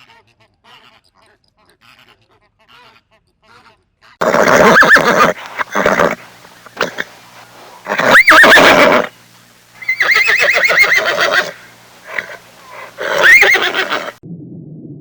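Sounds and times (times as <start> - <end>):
horse whinnying: 4.2 - 9.2, 9.8 - 14.2.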